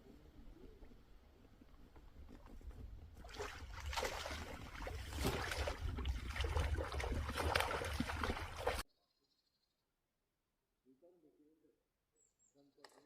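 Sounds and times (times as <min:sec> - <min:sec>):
water splashing and sloshing: 0:01.9 - 0:08.8.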